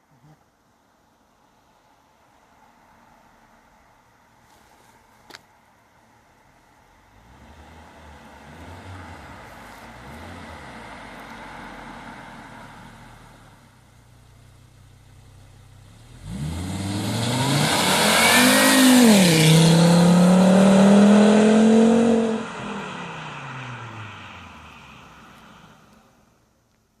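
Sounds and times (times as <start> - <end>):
car engine accelerating hard: 7.1 - 13.6, 15.7 - 26.2.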